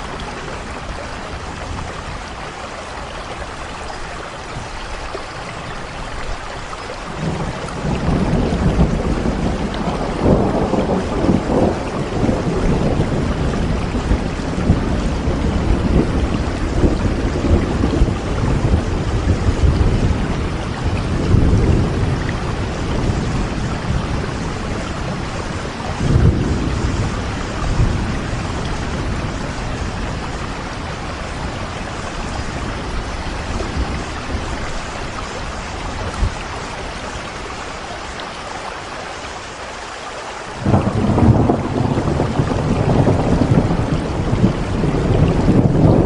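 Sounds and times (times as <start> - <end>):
steady rainfall: 0.0 - 46.0
thunder rumbling: 7.1 - 38.3, 40.6 - 46.0.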